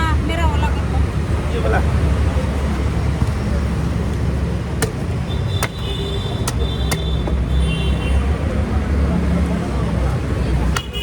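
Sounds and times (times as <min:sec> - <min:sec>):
street traffic rumble: 0:00.0 - 0:11.0
machete chopping coconut: 0:04.7 - 0:07.4, 0:10.7 - 0:11.0.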